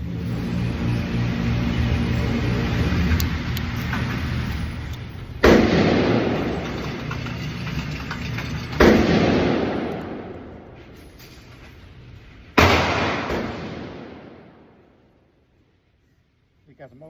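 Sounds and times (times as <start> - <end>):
gunshots with echo: 5.4 - 6.5, 12.6 - 14.6.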